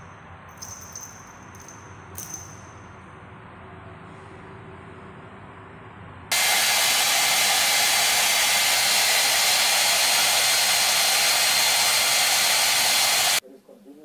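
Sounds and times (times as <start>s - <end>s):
hair dryer blowing: 6.3s - 13.4s.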